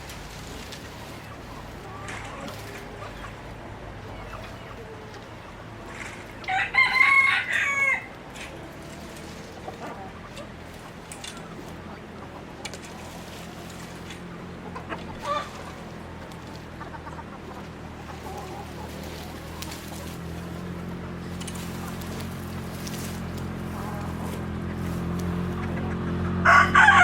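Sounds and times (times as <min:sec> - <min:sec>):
steady low hum: 0:00.0 - 0:26.3
chicken calls: 0:00.0 - 0:27.0
rooster crowing: 0:06.3 - 0:08.2, 0:26.4 - 0:27.0.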